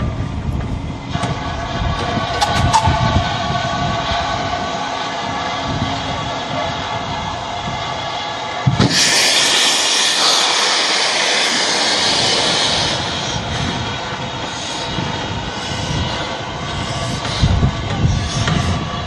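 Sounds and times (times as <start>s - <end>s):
low rumble: 0.0s - 10.6s
steam locomotive hissing: 0.0s - 19.0s.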